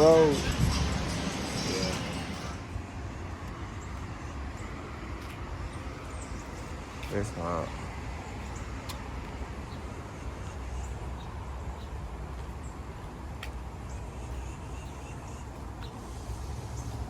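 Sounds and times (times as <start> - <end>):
low rumble: 0.0 - 6.9.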